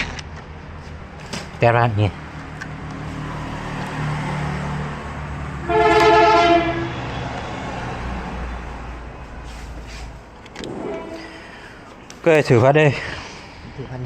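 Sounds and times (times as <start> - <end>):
vehicle horn blare: 5.6 - 7.2, 10.7 - 11.6.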